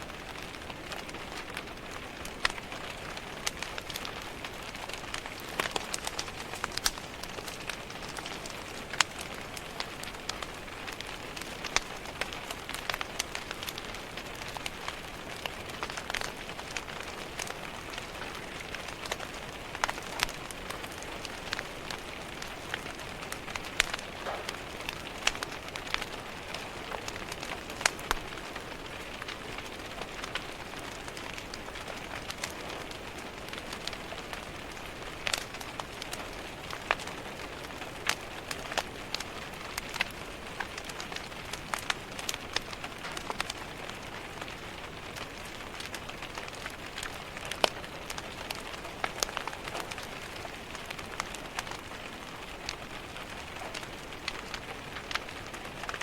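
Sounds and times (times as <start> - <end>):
steady rain: 0.0 - 56.0
wood fire crackling: 0.0 - 56.0.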